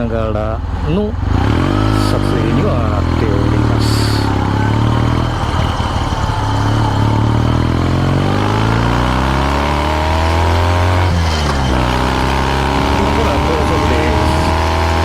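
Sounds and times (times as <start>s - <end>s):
motorcycle exhaust while riding: 0.0s - 15.0s.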